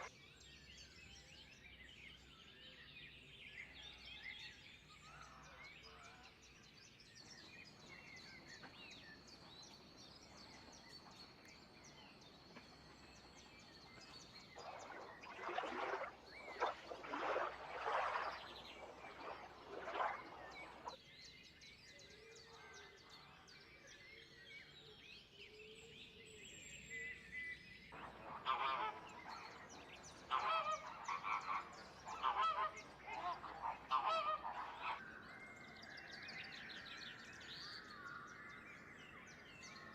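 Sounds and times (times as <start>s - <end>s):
birds calling rapidly: 13.9s - 21.0s, 28.0s - 35.0s.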